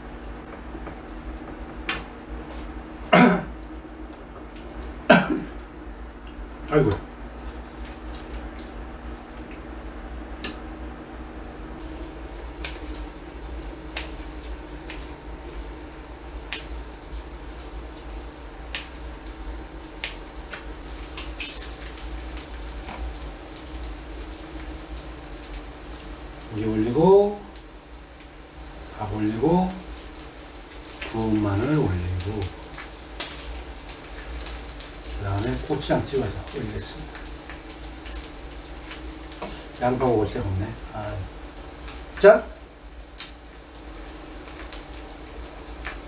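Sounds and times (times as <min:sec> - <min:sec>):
steady low hum: 0:00.0 - 0:43.5
man coughing: 0:03.1 - 0:03.6, 0:05.1 - 0:05.6, 0:06.7 - 0:07.0
throat clearing: 0:03.1 - 0:03.6, 0:05.1 - 0:05.6, 0:06.7 - 0:07.1.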